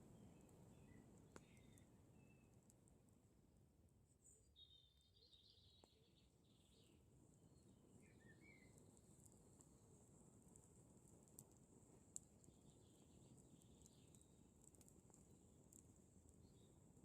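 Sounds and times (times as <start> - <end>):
faint bird chirps: 0.0 - 2.6, 4.2 - 8.8, 12.4 - 14.4
campfire clicking: 0.0 - 3.1, 7.1 - 17.0.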